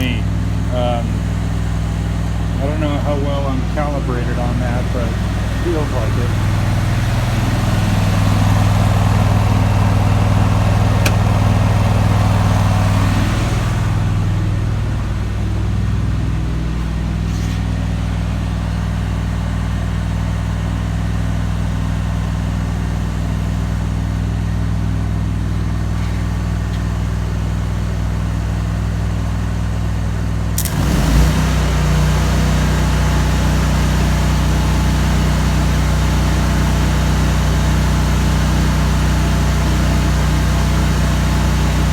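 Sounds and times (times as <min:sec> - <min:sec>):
welding generator engine running: 0:00.0 - 0:41.9
welding arc crackling: 0:30.6 - 0:31.3.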